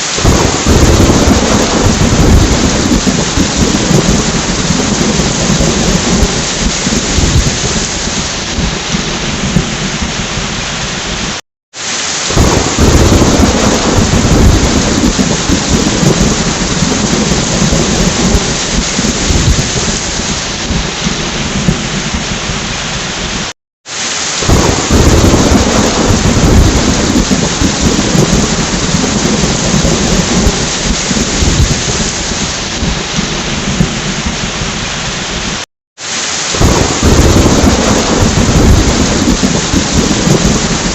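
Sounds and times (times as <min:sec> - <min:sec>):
low rolling thunder: 0:00.0 - 0:11.3, 0:12.3 - 0:22.9, 0:24.4 - 0:35.6, 0:36.6 - 0:40.9
heavy rain: 0:00.0 - 0:40.9.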